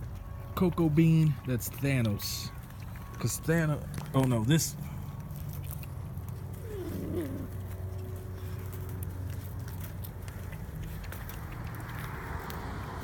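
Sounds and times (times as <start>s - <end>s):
puppy whining: 6.0s - 9.0s.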